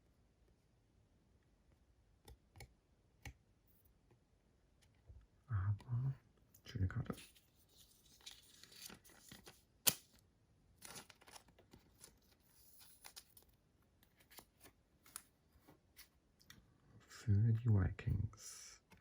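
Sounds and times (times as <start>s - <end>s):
plastic cards clicking and rustling: 7.8s - 10.2s, 10.8s - 13.4s.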